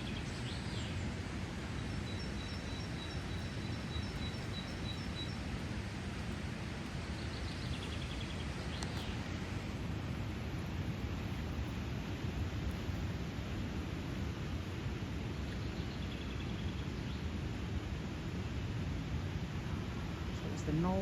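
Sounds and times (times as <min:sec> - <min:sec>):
small bird singing: 0:00.0 - 0:05.6, 0:07.0 - 0:09.2
bird chirps: 0:01.8 - 0:05.4.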